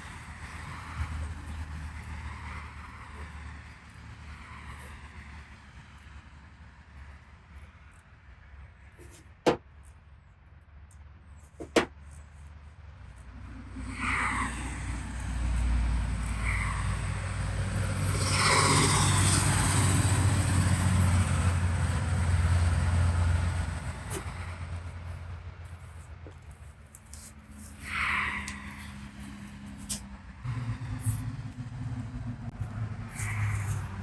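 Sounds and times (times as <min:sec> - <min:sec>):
motor vehicle passing: 0:00.0 - 0:09.2, 0:12.1 - 0:34.0.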